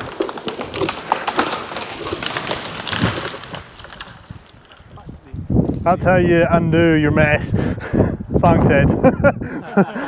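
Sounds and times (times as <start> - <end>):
branches crackling and snapping: 0.0 - 6.0.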